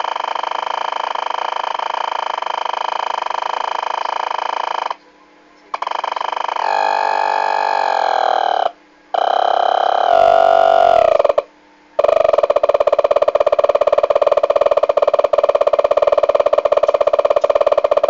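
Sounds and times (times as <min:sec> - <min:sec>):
harsh electronic buzzing drone: 0:00.0 - 0:05.0, 0:05.7 - 0:18.0.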